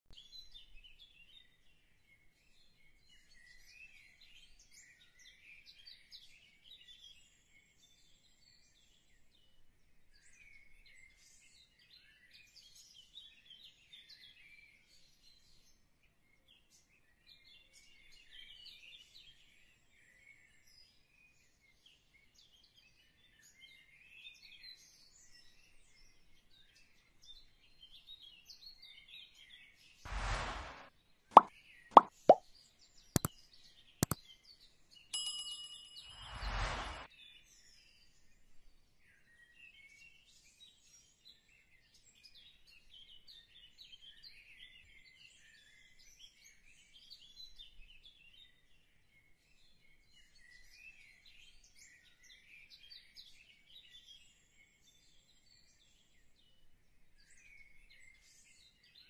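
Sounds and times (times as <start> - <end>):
small birds chirping: 33.2 - 34.6.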